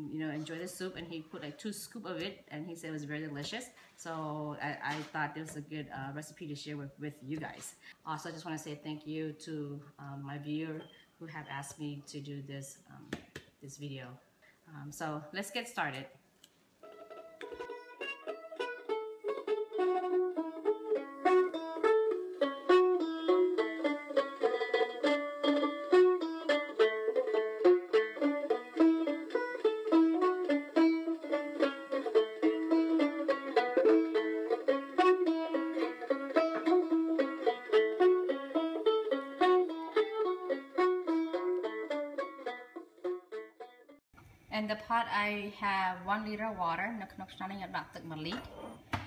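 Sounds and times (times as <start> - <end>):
plucked string melody: 16.8 - 44.0.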